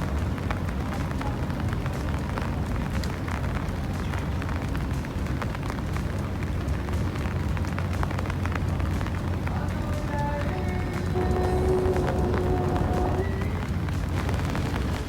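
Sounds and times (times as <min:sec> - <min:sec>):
rain falling: 0:00.0 - 0:15.0
raindrop hits near microphone: 0:00.0 - 0:15.0
low rumble: 0:07.4 - 0:15.0.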